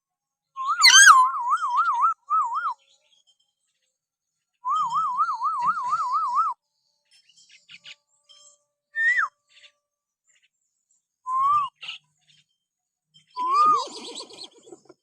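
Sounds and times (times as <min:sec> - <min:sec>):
whistled notes: 0:00.7 - 0:01.3.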